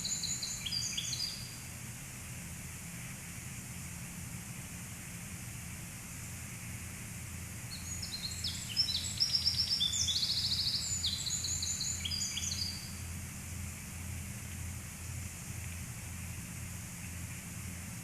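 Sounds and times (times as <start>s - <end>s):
songbird chirps and trills: 0.0s - 1.8s, 7.4s - 17.5s
low rumble and hiss: 0.0s - 18.0s.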